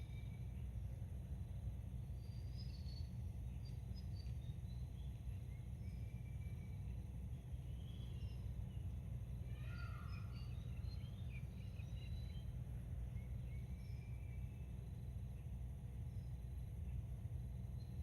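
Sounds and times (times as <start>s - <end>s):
low outdoor rumble: 0.0s - 18.0s
small birds chirping: 0.0s - 18.0s.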